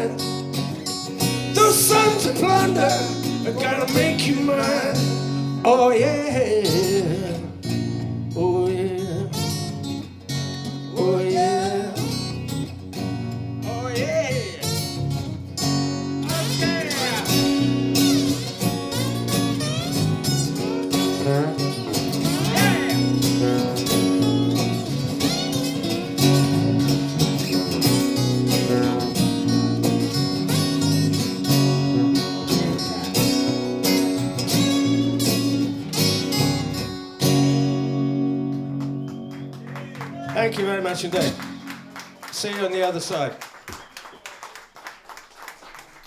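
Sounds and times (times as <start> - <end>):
lead guitar bending notes: 12.1 - 42.3
blues-rock band playing: 14.7 - 42.2.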